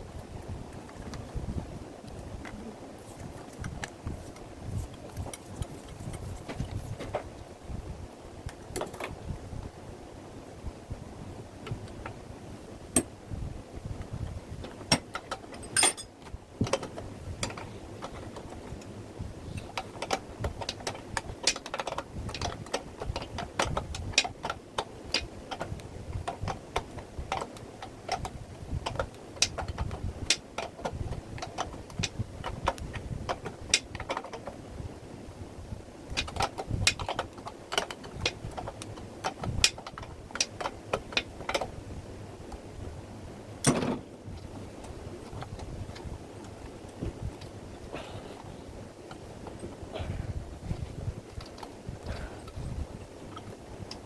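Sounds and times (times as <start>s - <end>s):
tools and metal parts clicking: 14.9s - 16.2s.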